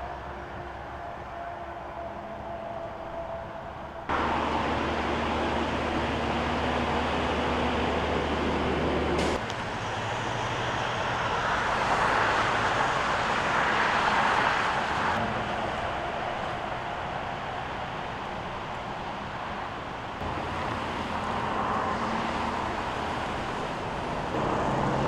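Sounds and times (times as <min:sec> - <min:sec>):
freeway traffic noise: 0:00.0 - 0:25.0
vehicle passing: 0:20.2 - 0:25.0.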